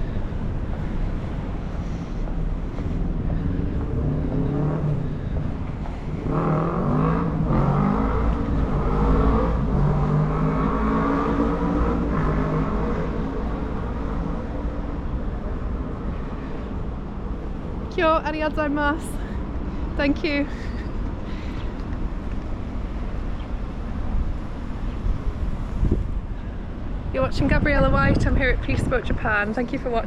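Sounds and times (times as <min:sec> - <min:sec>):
low rumble of wind and traffic: 0:00.0 - 0:30.0
vehicle engine speeding up: 0:02.7 - 0:05.4, 0:06.0 - 0:16.0.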